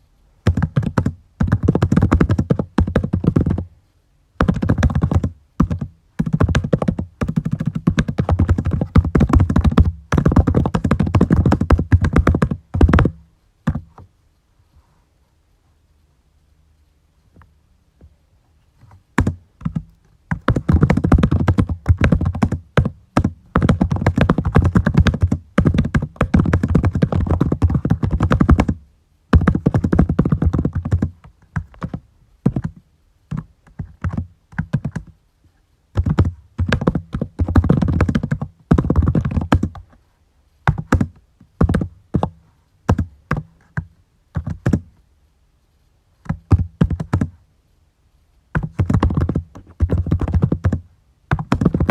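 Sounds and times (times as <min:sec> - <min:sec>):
typing on computer keyboard: 0:04.4 - 0:13.8, 0:19.2 - 0:28.8, 0:48.6 - 0:51.9.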